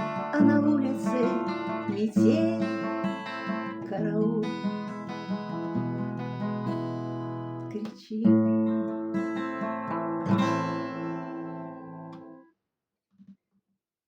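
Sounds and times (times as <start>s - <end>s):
acoustic guitar strums: 0.0s - 12.4s.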